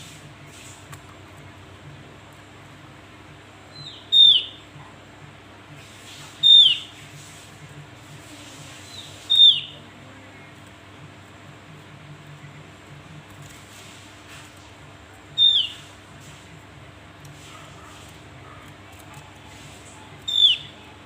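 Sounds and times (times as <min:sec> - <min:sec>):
bird calling sharp notes: 0:03.7 - 0:04.7, 0:06.4 - 0:06.9, 0:08.9 - 0:09.8, 0:15.3 - 0:15.9, 0:20.2 - 0:20.9.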